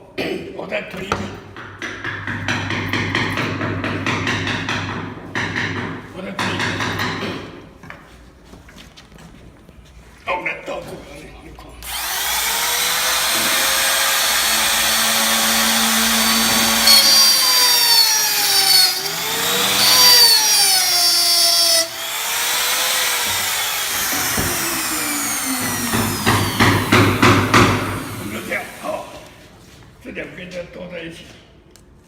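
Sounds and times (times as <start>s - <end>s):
power tool cutting wood: 11.8s - 29.4s
knocks: 23.2s - 24.9s, 25.5s - 28.2s.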